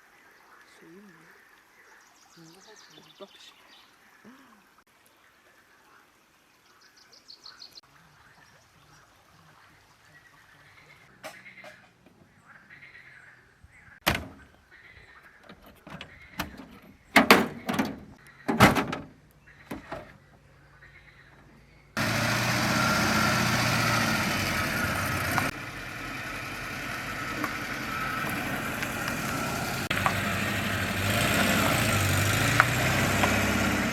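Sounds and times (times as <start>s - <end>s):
knocks and thuds: 14.0s - 14.5s, 15.8s - 20.2s
engine running with low hum: 19.6s - 33.9s.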